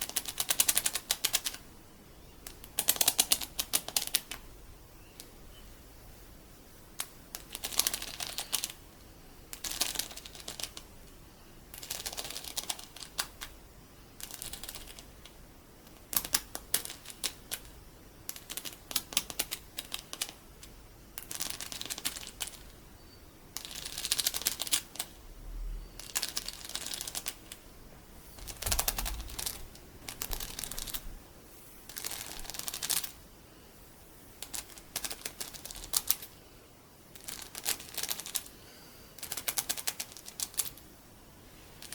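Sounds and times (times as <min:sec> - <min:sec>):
beads clicking and crackling: 0:07.0 - 0:08.9, 0:09.5 - 0:13.6, 0:14.2 - 0:22.8, 0:23.5 - 0:25.2, 0:26.0 - 0:27.7, 0:28.4 - 0:31.1, 0:31.8 - 0:33.2, 0:34.3 - 0:36.4, 0:37.1 - 0:38.5, 0:39.2 - 0:40.8.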